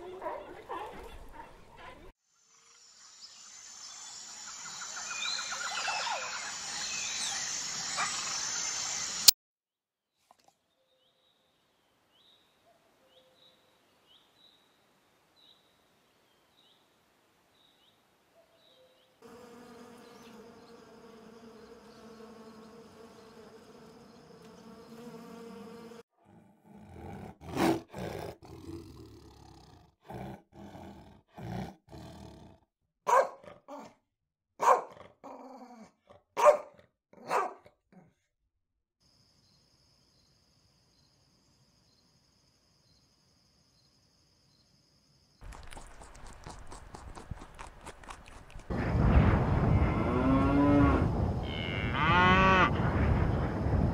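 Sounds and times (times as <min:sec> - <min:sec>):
bees buzzing: 0:19.2 - 0:26.0
dog growling and barking: 0:26.2 - 0:34.0, 0:34.6 - 0:38.2.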